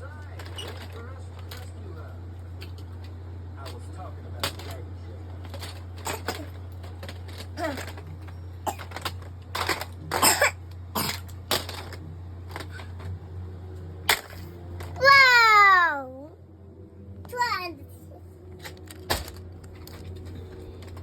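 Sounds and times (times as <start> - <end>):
low hum: 0.0 - 21.0
toy truck clacking: 2.5 - 10.2.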